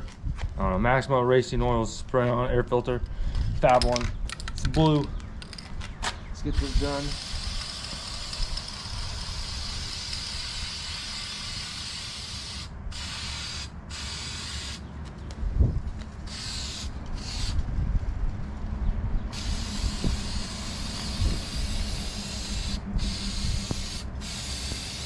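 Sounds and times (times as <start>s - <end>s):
aerosol can spraying: 6.6s - 14.8s, 16.3s - 17.6s, 19.3s - 25.0s.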